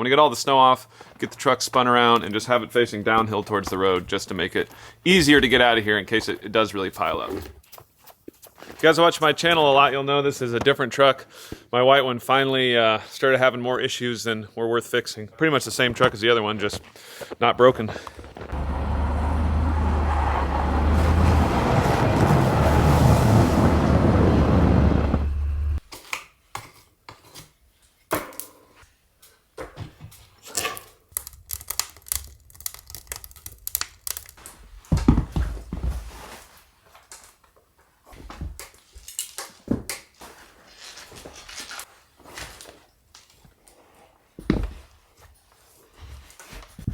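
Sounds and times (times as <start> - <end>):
snow scraping off truck: 18.2 - 25.8
steady rushing noise with rumble: 20.9 - 25.8.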